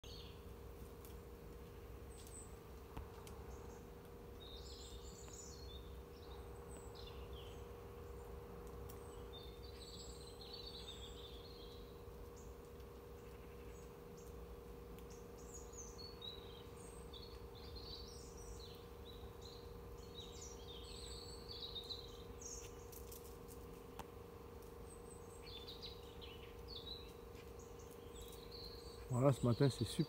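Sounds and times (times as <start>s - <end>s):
birds chirping: 0.0s - 30.0s
faint steady hum: 0.0s - 30.0s.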